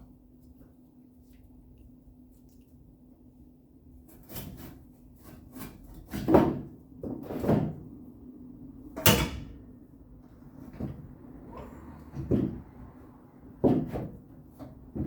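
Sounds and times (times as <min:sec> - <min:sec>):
wood knocking on sheet metal: 0:13.5 - 0:15.0.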